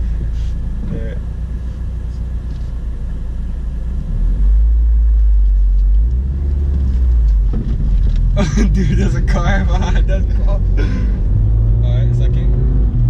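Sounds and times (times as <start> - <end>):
car engine pulling away: 2.4 - 13.0.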